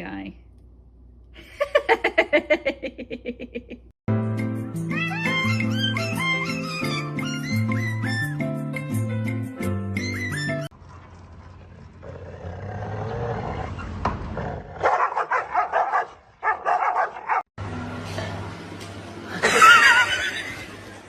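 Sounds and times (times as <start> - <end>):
dog barking and growling: 11.9 - 17.5.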